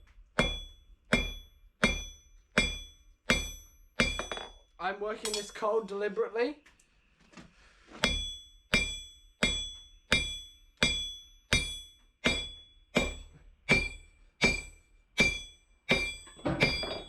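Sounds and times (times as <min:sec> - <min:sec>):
hammer striking steel on anvil: 0:00.4 - 0:04.6, 0:05.2 - 0:05.6, 0:08.0 - 0:17.0
anvil ringing: 0:00.4 - 0:05.7, 0:08.0 - 0:17.0.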